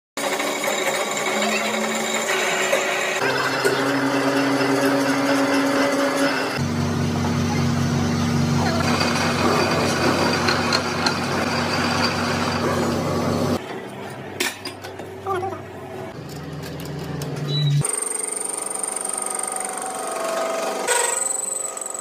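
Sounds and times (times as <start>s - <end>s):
vehicle engine running: 6.6s - 13.6s.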